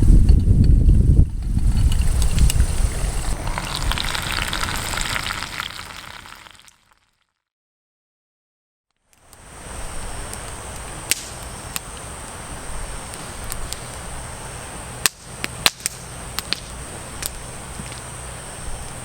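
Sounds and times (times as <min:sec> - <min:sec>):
campfire crackling and popping: 0:00.8 - 0:07.0, 0:10.3 - 0:12.1, 0:15.0 - 0:17.4.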